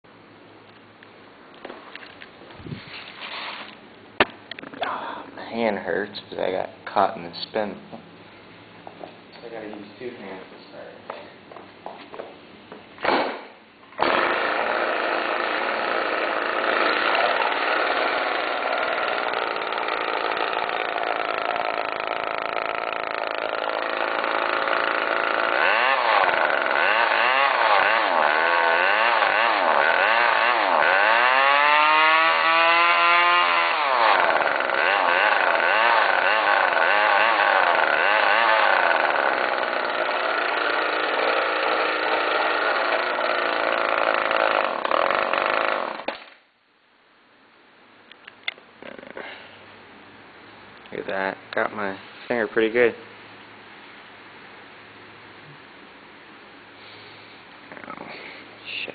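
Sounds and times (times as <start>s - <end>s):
pull starter: 13.0s - 46.4s
two-stroke engine revving: 14.0s - 46.2s.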